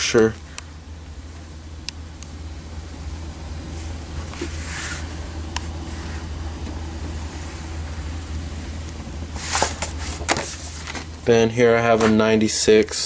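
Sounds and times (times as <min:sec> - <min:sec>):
steady low hum: 0:00.0 - 0:13.0
paper rustling: 0:09.4 - 0:11.2.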